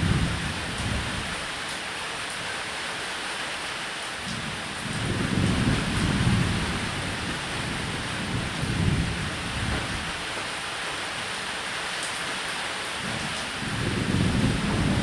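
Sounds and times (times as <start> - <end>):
thunder rumbling: 0.0 - 1.4, 4.8 - 10.4, 13.1 - 15.0
heavy rain: 0.0 - 15.0.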